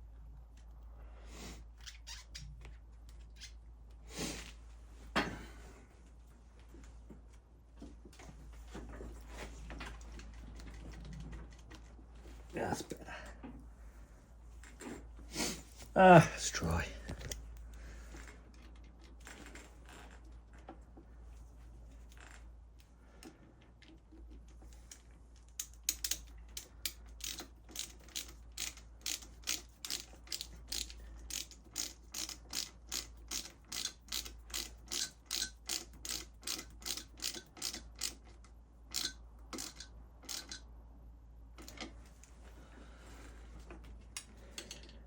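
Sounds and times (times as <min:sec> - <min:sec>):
ratchet wrench clicking: 0:25.6 - 0:38.3, 0:38.9 - 0:40.6.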